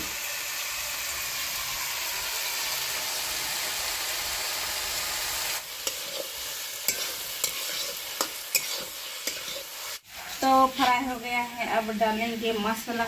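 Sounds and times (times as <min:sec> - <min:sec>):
vegetables sizzling in hot oil: 0:00.0 - 0:13.0
metal spatula clinking on pan: 0:06.9 - 0:09.6.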